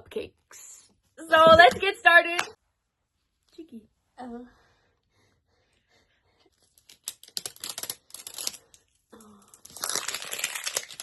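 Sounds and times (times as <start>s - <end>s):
plastic wrapper crinkling: 6.7s - 8.8s, 9.6s - 11.0s
plastic wrapper tearing: 6.8s - 8.8s, 9.4s - 11.0s.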